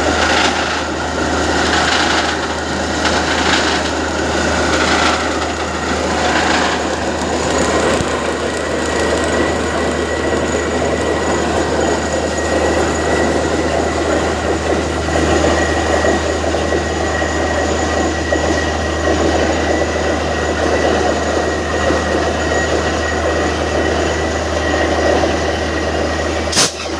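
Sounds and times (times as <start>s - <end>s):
drilling rig engine drone: 0.0s - 26.9s
dense rattling: 0.1s - 9.6s
thin high whine: 26.2s - 26.9s.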